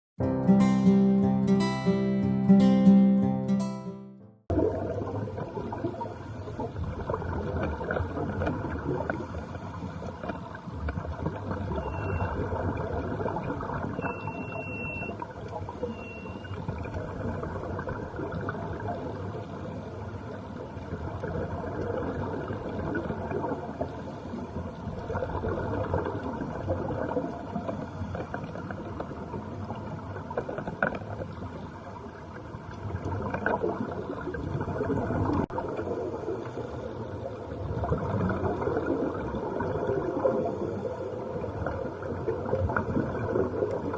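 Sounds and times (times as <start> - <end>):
water rushing along hull: 4.5 - 43.9
short high beeps: 11.7 - 12.4, 14.0 - 15.2, 15.8 - 16.6.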